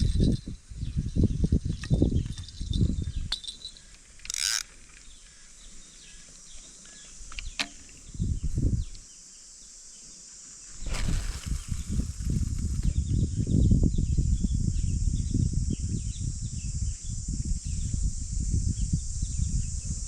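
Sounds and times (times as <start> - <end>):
wind rumbling on microphone: 0.0 - 3.4, 7.4 - 9.0, 10.7 - 20.0
high-pitched insect chorus: 0.0 - 20.0
short rustle: 10.5 - 13.0.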